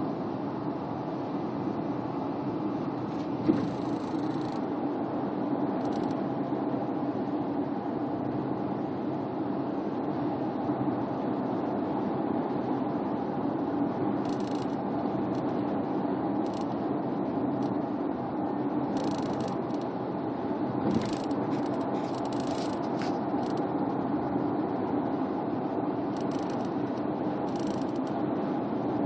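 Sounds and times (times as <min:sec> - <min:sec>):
car cabin road noise: 0:02.3 - 0:04.7, 0:19.0 - 0:23.6.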